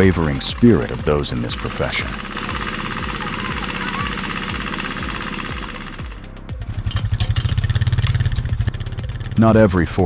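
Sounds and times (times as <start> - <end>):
diesel truck engine under load: 0.0 - 9.6.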